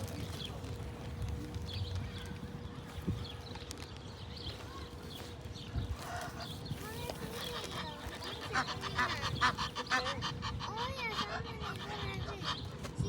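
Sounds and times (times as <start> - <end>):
flock of birds calling: 4.5 - 13.0.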